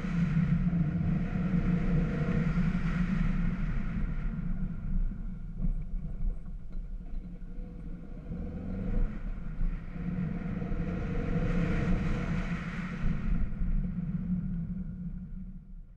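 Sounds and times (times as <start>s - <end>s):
road rumble: 0.0s - 15.9s
car engine: 6.6s - 14.1s.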